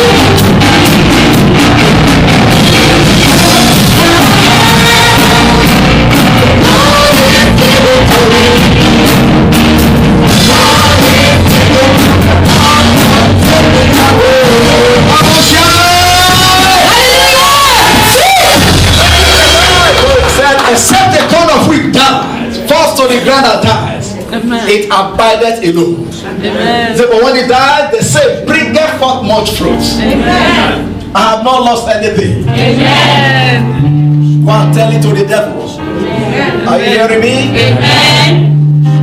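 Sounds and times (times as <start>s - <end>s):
singing over a band: 0.0s - 9.1s, 10.3s - 19.9s
drum kit: 0.0s - 22.0s.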